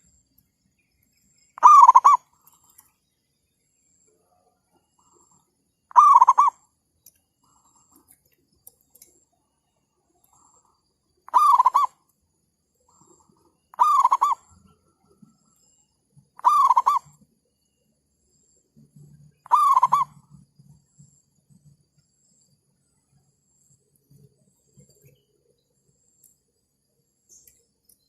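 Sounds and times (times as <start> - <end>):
dove cooing: 1.6 - 2.3, 5.9 - 6.6, 11.3 - 12.0, 13.7 - 14.6, 16.4 - 17.2, 19.4 - 20.3.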